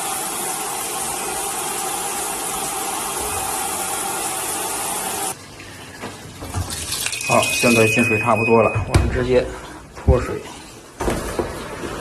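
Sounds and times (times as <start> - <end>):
water pouring into washing machine: 0.0 - 8.0.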